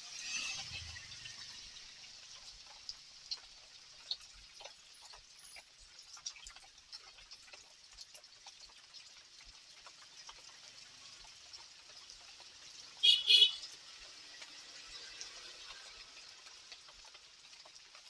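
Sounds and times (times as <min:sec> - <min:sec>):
rain hissing: 0:00.0 - 0:06.7, 0:12.6 - 0:18.0
drips and taps on hard surfaces: 0:02.4 - 0:18.0.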